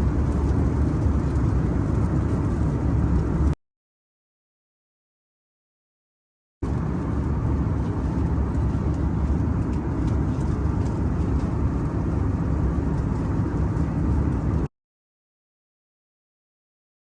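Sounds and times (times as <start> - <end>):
vehicle rumble: 0.0 - 3.6, 6.6 - 14.7.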